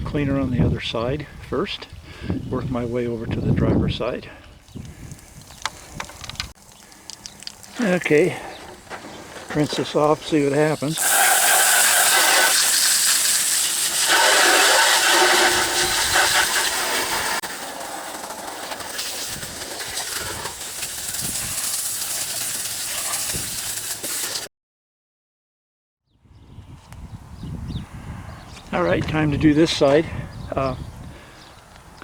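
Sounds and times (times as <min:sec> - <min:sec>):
hose spraying water on engine: 0:09.5 - 0:24.5.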